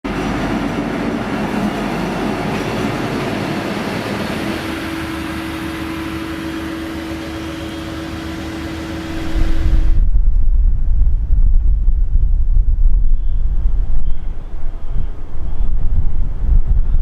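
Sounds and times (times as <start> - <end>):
locomotive rumble: 0.1 - 17.0
low hum: 0.1 - 17.0.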